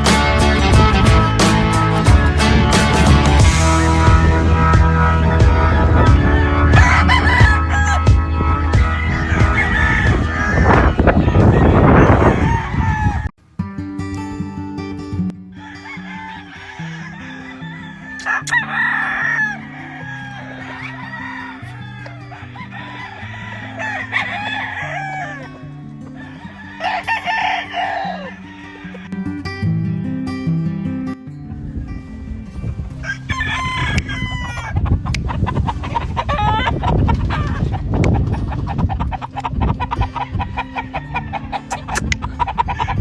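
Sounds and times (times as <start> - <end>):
background music: 0.0 - 11.7, 22.3 - 34.5
roosters crowing and clucking: 0.0 - 13.3, 15.4 - 29.2, 31.6 - 43.0.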